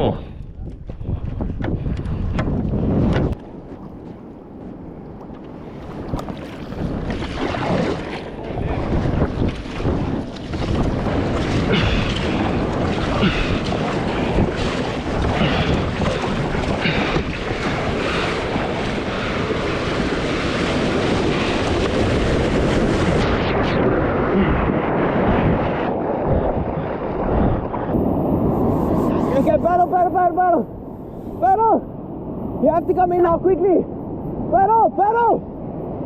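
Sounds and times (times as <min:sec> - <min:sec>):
wind buffeting microphone: 0:00.0 - 0:36.0
sea waves: 0:03.5 - 0:36.0
paddle splashes: 0:05.4 - 0:23.3.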